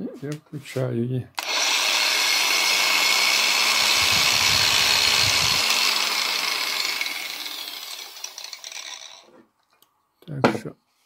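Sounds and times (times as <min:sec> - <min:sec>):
angle grinder whining: 0:01.4 - 0:09.3.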